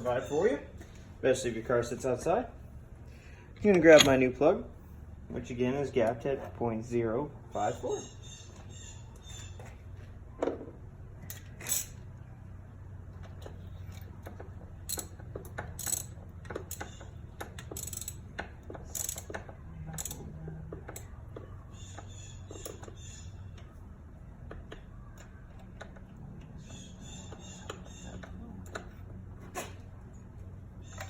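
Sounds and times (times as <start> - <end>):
low steady hum: 0.0 - 31.0
metal hand tools clinking: 3.6 - 4.3.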